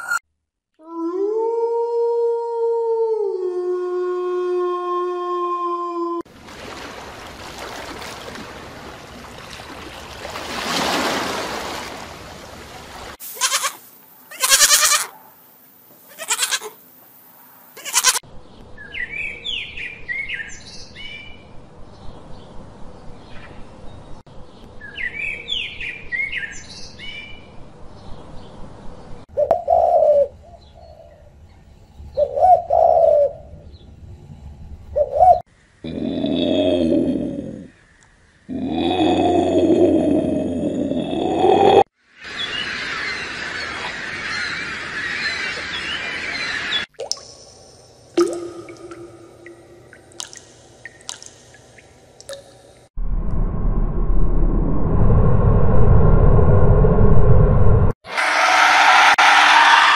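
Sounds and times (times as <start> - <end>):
short loud hiss bursts: 13.2 - 14.9
dove cooing: 29.4 - 31.0, 32.2 - 33.4, 35.0 - 35.4.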